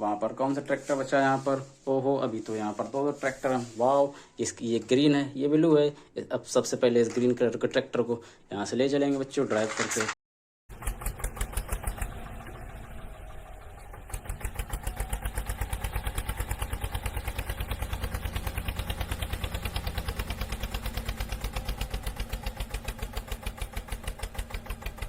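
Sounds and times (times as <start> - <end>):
tractor engine chugging: 10.7 - 25.0.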